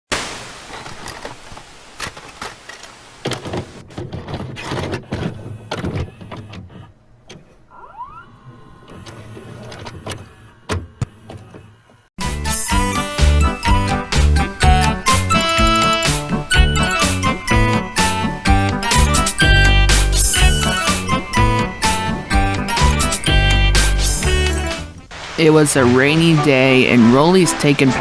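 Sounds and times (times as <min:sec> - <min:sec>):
vcr motor whirring: 0:08.3 - 0:27.9
static hiss: 0:12.5 - 0:28.0.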